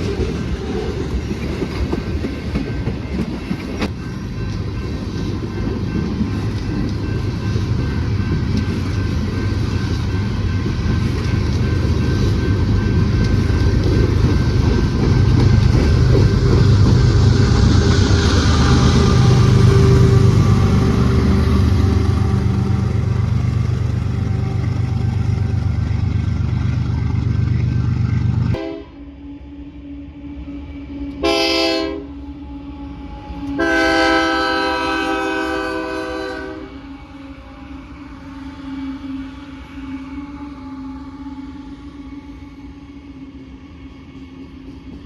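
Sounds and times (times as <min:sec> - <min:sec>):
freight train rumbling: 0:00.0 - 0:45.0
locomotive air horn blasts: 0:28.5 - 0:29.2, 0:31.2 - 0:32.1, 0:33.5 - 0:37.0.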